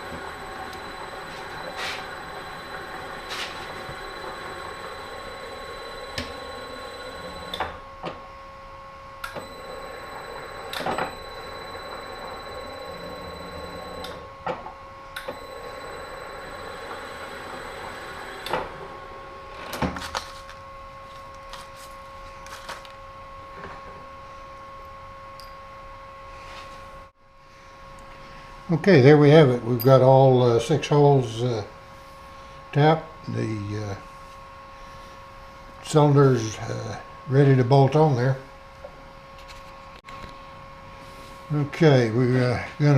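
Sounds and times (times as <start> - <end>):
machine-tool motor whining: 0.0 - 7.8, 9.2 - 14.2, 15.2 - 19.9.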